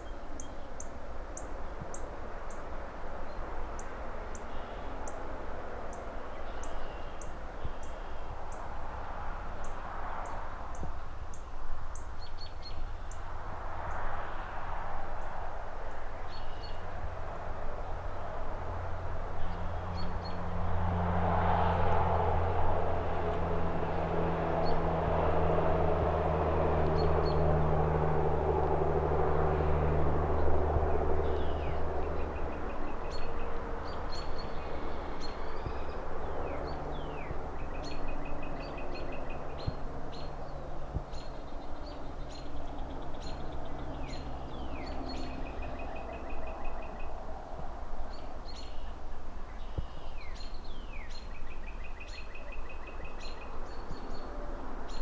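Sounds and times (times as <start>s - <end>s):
distant traffic hum: 0.0s - 55.0s
birds chirping and trilling: 5.9s - 8.6s, 30.4s - 47.2s, 48.1s - 54.3s
low engine drone: 16.9s - 48.9s.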